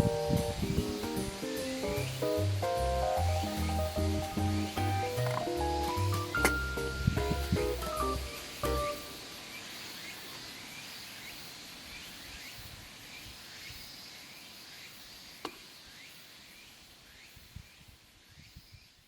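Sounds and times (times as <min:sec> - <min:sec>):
steady high hiss: 0:00.0 - 0:19.0
sharp click: 0:15.4 - 0:15.6.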